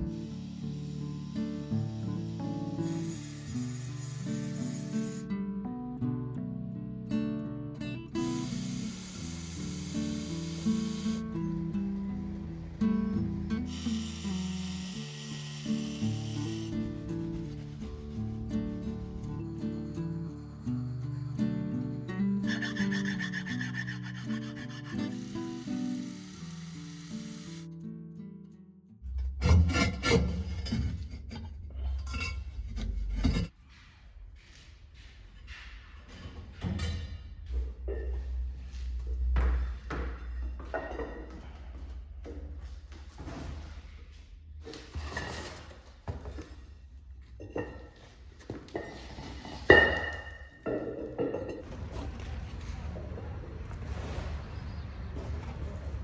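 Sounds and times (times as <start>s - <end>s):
rhythmic rubbing and scraping: 8.2s - 25.8s, 29.0s - 33.6s
heavy low rumble: 51.6s - 56.0s.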